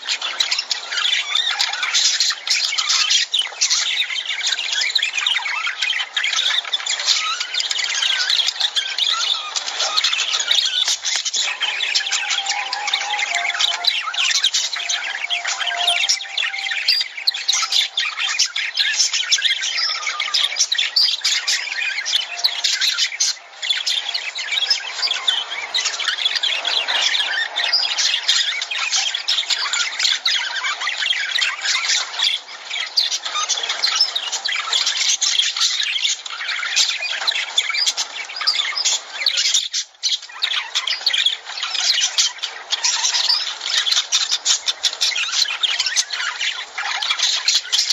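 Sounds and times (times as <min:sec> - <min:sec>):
lovebirds chattering: 0:09.6 - 0:28.8.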